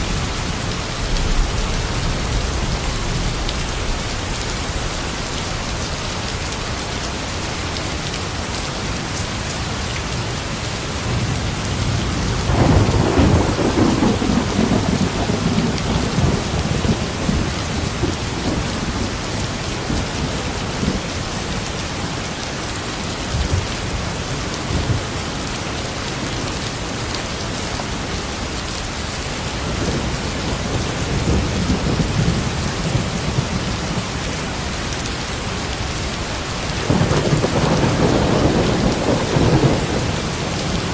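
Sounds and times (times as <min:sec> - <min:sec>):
heavy rain: 0:00.0 - 0:40.9
thunder rumbling: 0:11.1 - 0:21.0, 0:29.6 - 0:34.9, 0:35.8 - 0:40.9.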